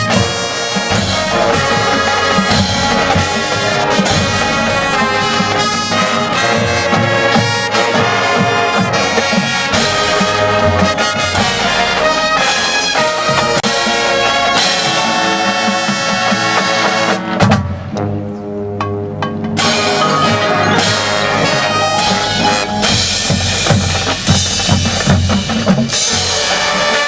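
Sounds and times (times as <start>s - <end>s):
marching band playing: 0.0s - 27.0s.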